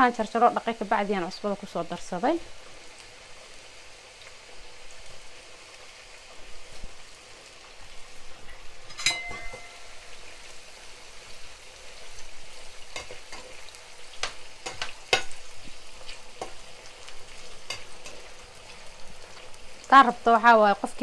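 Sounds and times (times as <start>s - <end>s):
vegetables sizzling in hot oil: 0.0s - 21.0s
spatula knocking and scraping pan: 12.9s - 13.6s, 14.2s - 15.4s, 16.4s - 16.6s, 17.6s - 18.2s.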